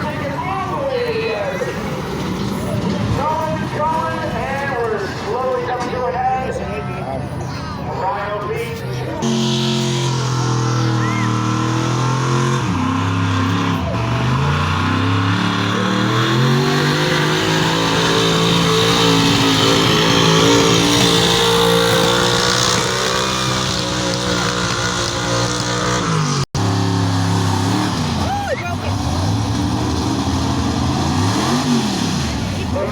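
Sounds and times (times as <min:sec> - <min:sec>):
truck engine under heavy load: 0:00.0 - 0:32.9.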